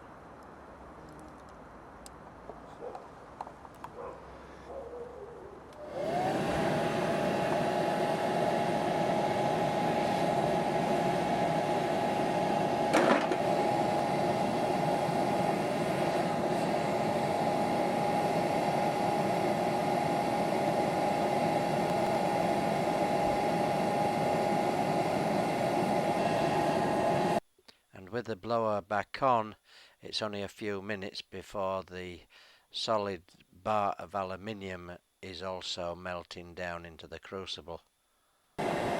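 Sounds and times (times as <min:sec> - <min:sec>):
blower motor whine: 0:05.7 - 0:27.4, 0:38.6 - 0:38.9.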